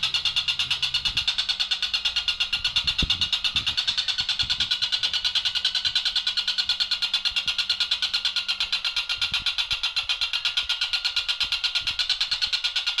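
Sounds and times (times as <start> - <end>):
kingfisher calling rapidly: 0.0 - 13.0.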